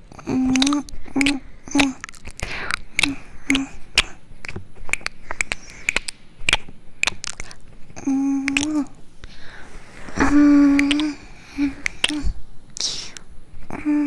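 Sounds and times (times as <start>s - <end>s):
person humming: 0.0s - 4.2s, 7.1s - 14.0s
close-up clicks and crackles: 0.1s - 14.0s.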